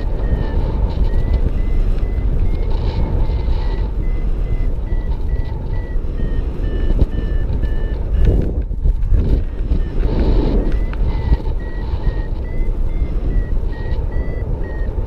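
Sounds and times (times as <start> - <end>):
variometer short beeps: 0.0 - 8.6, 9.6 - 15.0
wind rumble on microphone: 0.0 - 15.0.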